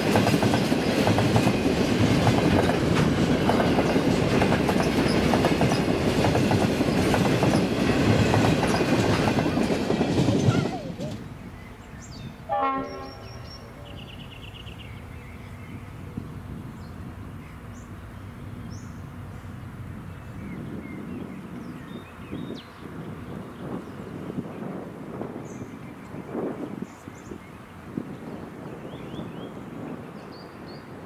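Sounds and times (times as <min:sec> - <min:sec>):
train horn note: 0:12.5 - 0:13.7.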